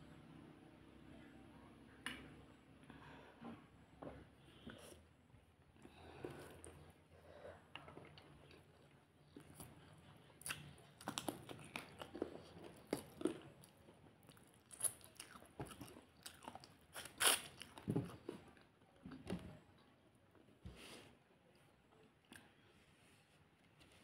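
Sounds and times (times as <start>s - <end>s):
chewing and mouth sounds: 7.7s - 18.7s.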